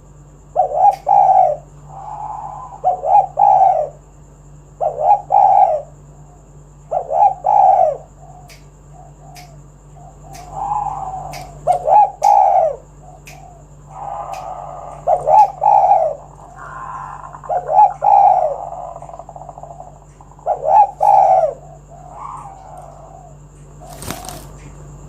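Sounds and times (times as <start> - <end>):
dove cooing: 0.0 - 4.0, 4.7 - 24.6
low hum: 0.0 - 25.0
sharp clicks: 10.3 - 10.5, 11.3 - 12.4, 13.2 - 13.4.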